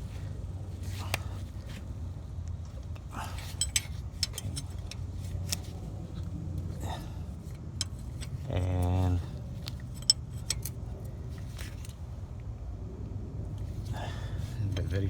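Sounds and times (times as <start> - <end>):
metallic clinks of hand tools: 3.3 - 5.6, 9.8 - 10.8
ratchet and socket clicking: 3.6 - 5.6.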